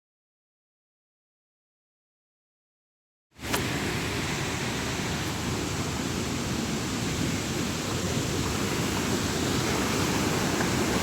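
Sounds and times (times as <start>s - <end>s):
waterfall and river rushing: 3.4s - 11.0s.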